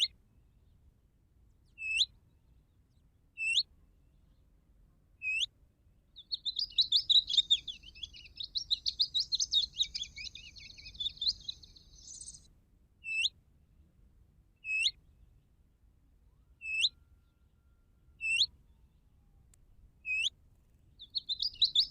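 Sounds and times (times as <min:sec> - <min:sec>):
short upward-hooked bird calls: 0:01.7 - 0:02.1, 0:03.4 - 0:03.7, 0:05.2 - 0:05.5, 0:06.2 - 0:13.3, 0:14.6 - 0:15.0, 0:16.6 - 0:17.0, 0:18.2 - 0:18.5, 0:20.0 - 0:20.4, 0:21.0 - 0:21.9
scratchy chattering birdsong: 0:06.2 - 0:12.4, 0:20.9 - 0:21.9.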